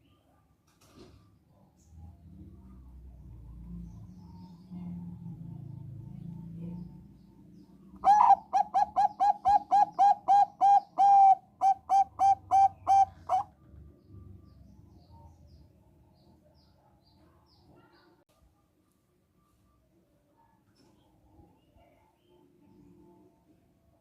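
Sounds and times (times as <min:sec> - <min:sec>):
dove cooing: 0:08.0 - 0:13.5.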